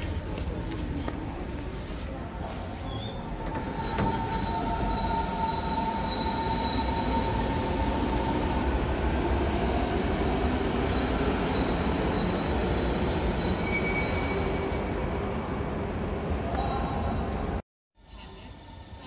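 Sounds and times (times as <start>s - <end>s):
high wheel squeal: 2.8s - 8.6s, 10.7s - 15.5s
train rumbling on tracks: 3.0s - 17.6s.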